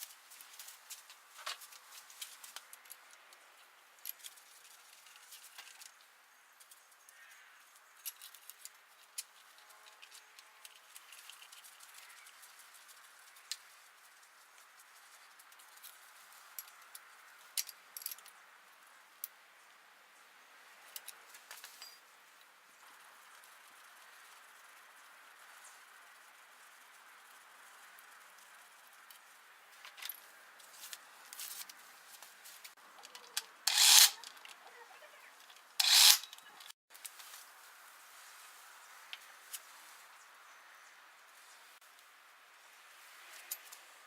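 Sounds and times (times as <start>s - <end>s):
tools and metal parts clicking: 8.0s - 11.6s, 33.0s - 34.6s, 35.4s - 36.7s.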